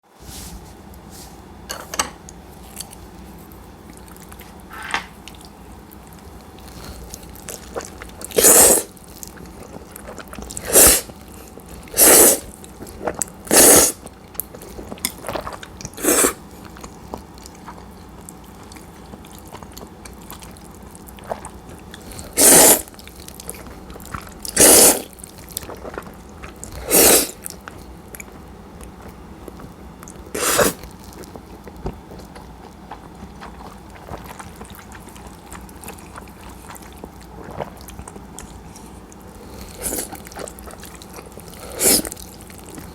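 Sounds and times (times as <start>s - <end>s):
chewing: 2.3s - 42.9s
noodles being slurped: 6.6s - 16.4s, 20.4s - 27.7s, 30.1s - 42.9s.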